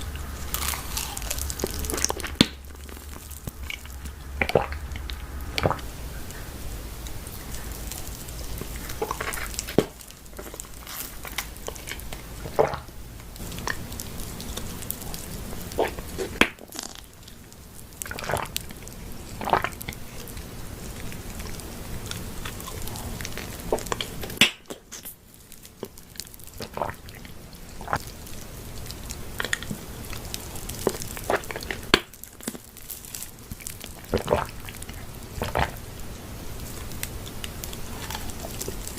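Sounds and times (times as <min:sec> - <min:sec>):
wet chewing mouth clicks: 0:07.0 - 0:17.4, 0:29.0 - 0:32.6, 0:33.8 - 0:35.8, 0:37.0 - 0:38.9.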